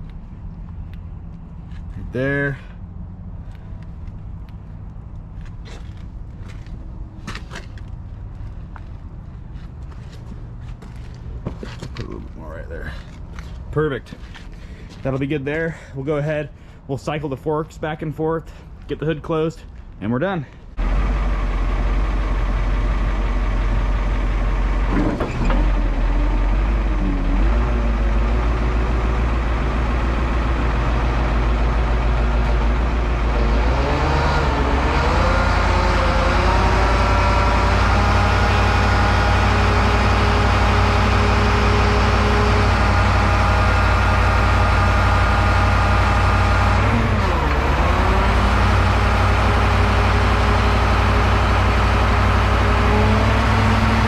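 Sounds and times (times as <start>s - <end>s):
forklift engine running: 20.7s - 54.0s.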